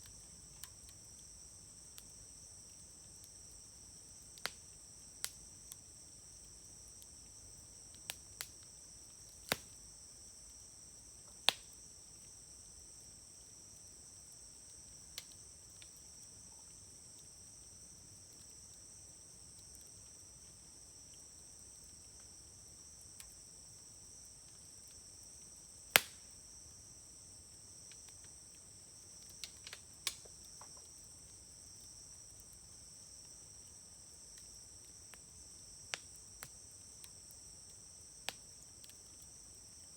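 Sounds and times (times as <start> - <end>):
insects chirping: 0.0 - 39.9
wood fire popping and crackling: 4.4 - 5.5, 9.3 - 9.8, 26.0 - 26.3, 29.3 - 30.9.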